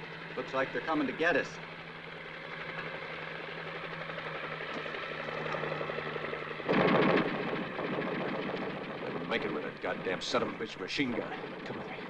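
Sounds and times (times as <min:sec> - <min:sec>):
helicopter rotor and engine: 0:00.0 - 0:12.0
machine-gun fire: 0:06.6 - 0:10.6.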